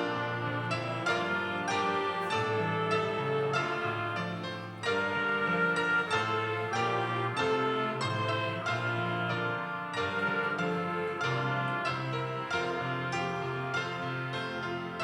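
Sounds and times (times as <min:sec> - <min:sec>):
piano and band worship music: 0:00.0 - 0:15.0.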